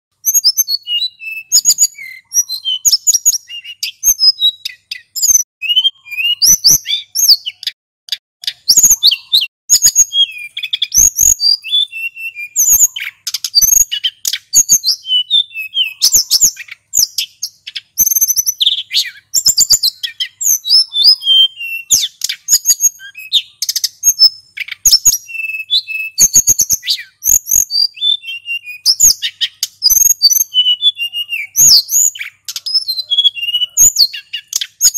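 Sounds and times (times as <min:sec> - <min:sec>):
songbird singing: 0:00.1 - 0:34.9.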